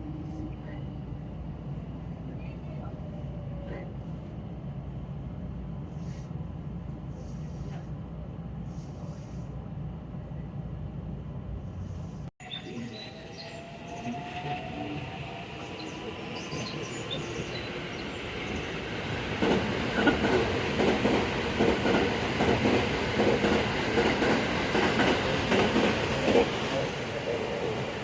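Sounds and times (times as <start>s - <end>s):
train running on rails: 11.3s - 28.0s
train wheels clickety-clack: 19.1s - 28.0s.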